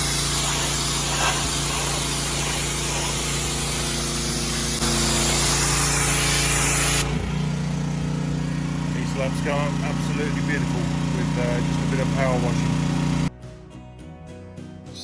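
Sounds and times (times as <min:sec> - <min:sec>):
pressure washer jet spraying: 0:00.0 - 0:13.3
machine hum: 0:04.6 - 0:13.3.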